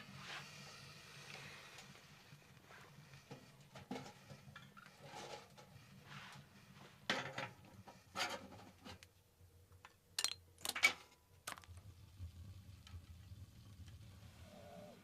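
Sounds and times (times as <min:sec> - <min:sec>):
sharp clicks and clinks: 0:10.2 - 0:11.7.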